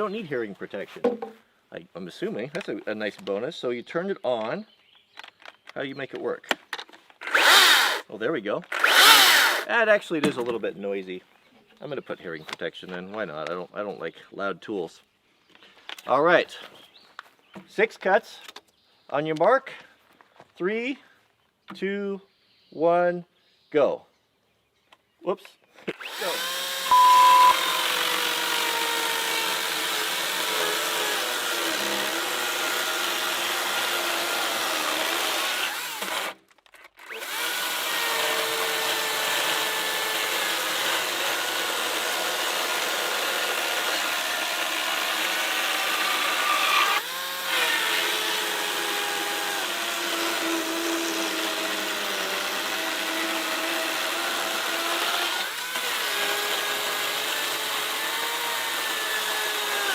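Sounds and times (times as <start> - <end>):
electric chainsaw cutting log: 7.2 - 8.0, 8.7 - 9.7, 25.9 - 36.4, 37.0 - 59.9.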